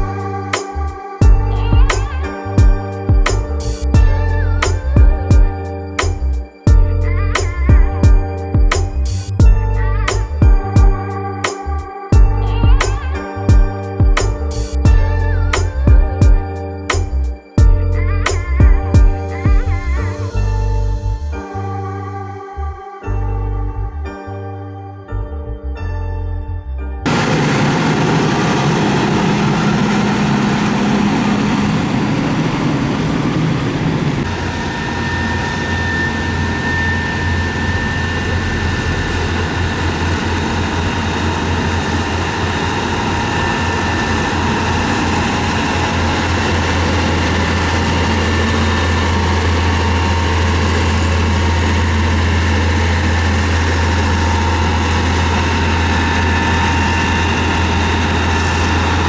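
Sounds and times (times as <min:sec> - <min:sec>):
heavy diesel engine running: 0:00.0 - 0:08.0, 0:27.1 - 0:59.0
faint high whine: 0:27.1 - 0:59.0.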